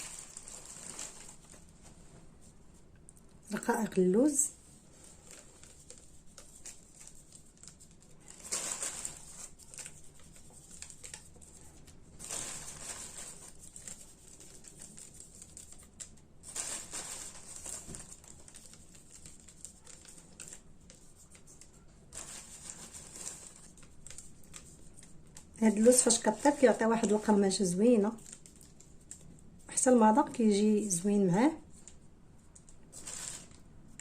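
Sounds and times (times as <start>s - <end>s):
almond flakes pattering: 12.2s - 30.9s.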